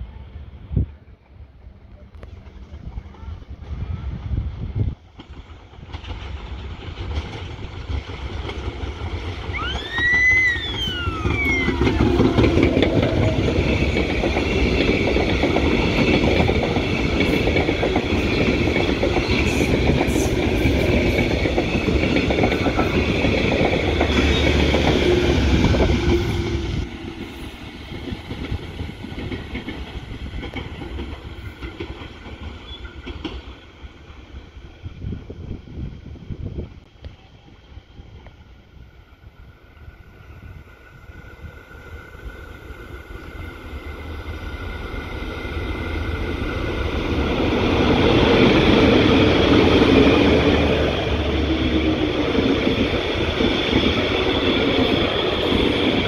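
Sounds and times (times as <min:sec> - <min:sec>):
high whine of train: 0:00.0 - 0:56.0
train wheels clattering: 0:05.1 - 0:10.7, 0:11.5 - 0:33.6
rising and falling tone: 0:09.5 - 0:13.5.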